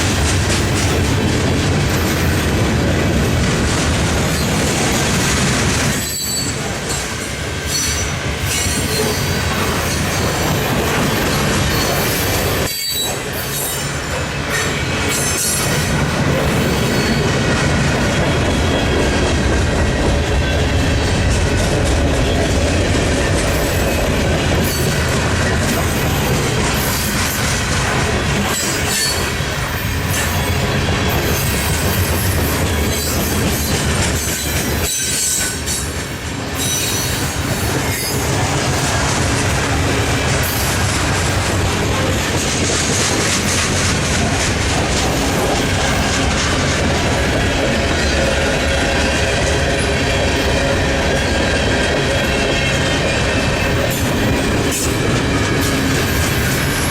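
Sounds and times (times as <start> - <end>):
train wheels clattering over joints: 0.0 - 56.9
train wheels squealing: 5.8 - 19.5, 22.1 - 38.4, 47.2 - 56.9.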